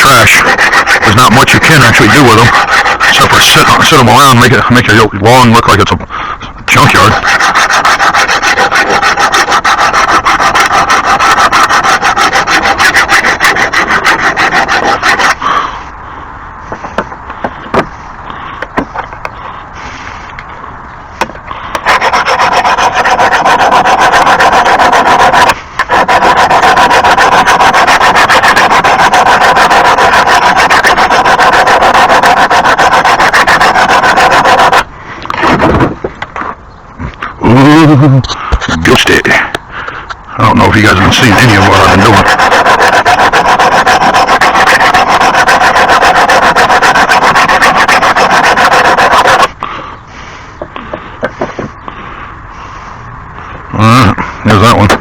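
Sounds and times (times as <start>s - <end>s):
lawn mower blade being sharpened: 0.0s - 4.5s, 6.8s - 15.4s, 21.8s - 34.8s, 41.0s - 49.5s.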